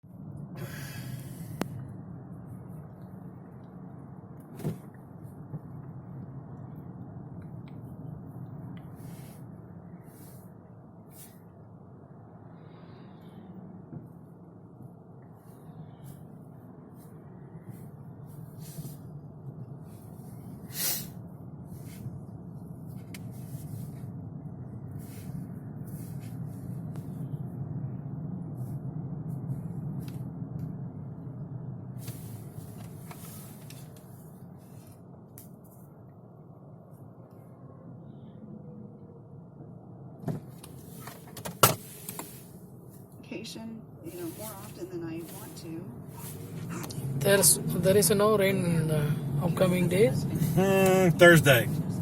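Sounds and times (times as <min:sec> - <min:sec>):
car road and engine rumble: 0:00.0 - 0:52.0
brief hiss: 0:20.7 - 0:21.2.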